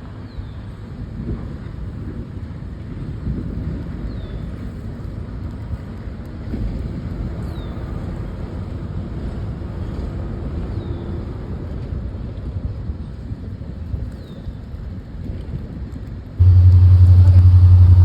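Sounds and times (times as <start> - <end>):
freight train wheels rumbling on rail: 16.4 - 18.0.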